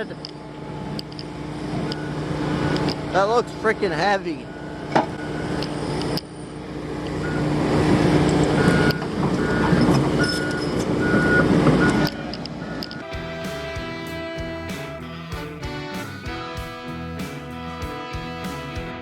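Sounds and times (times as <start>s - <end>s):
heavy vehicle engine running: 0.0s - 17.7s
backup alarm beeping: 4.4s - 6.0s, 7.2s - 7.6s, 8.4s - 13.1s.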